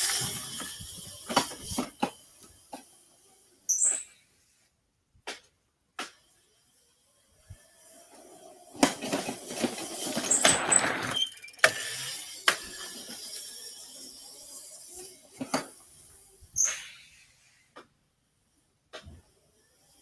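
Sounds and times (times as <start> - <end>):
electric dirt bike rattling: 0.0 - 3.5, 6.2 - 16.4.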